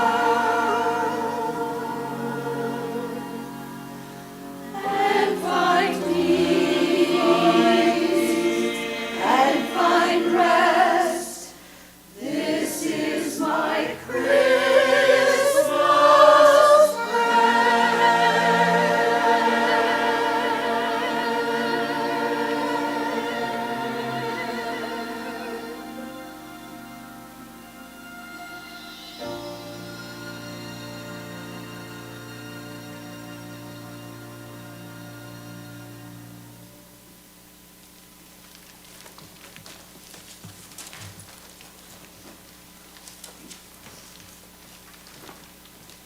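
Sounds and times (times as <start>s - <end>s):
church choir singing: 0.0s - 36.8s.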